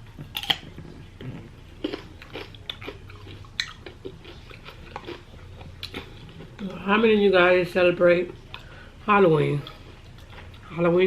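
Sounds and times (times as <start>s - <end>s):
person chewing and biting food: 0.0s - 6.7s.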